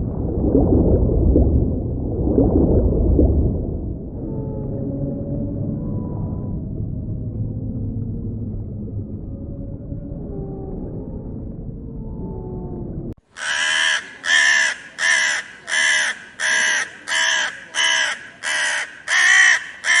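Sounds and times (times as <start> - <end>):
low rumble with drawn-out tones: 0.0 - 13.2
harsh animal calls: 13.3 - 20.0.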